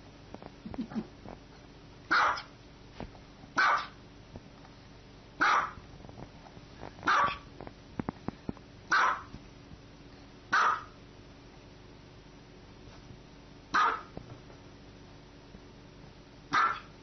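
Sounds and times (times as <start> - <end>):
small dog barking: 2.1 - 2.5, 3.6 - 4.0, 5.4 - 5.8, 7.0 - 7.5, 8.9 - 9.3, 10.5 - 11.0, 13.7 - 14.1, 16.5 - 17.0.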